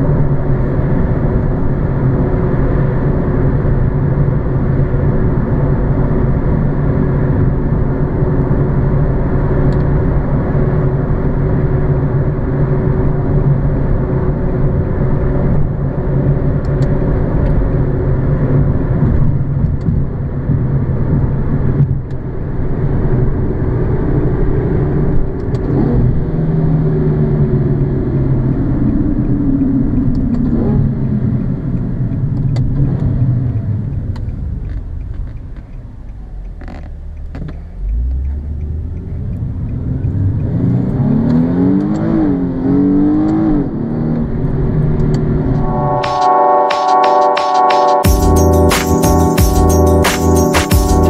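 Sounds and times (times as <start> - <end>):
music: 45.6 - 51.0.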